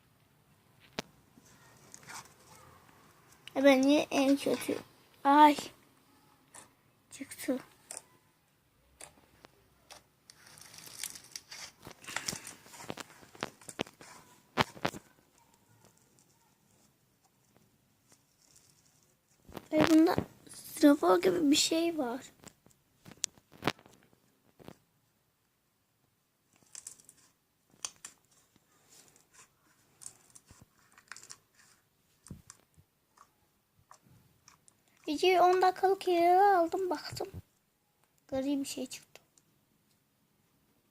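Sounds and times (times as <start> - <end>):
crunchy slime crackling: 9.9 - 16.4.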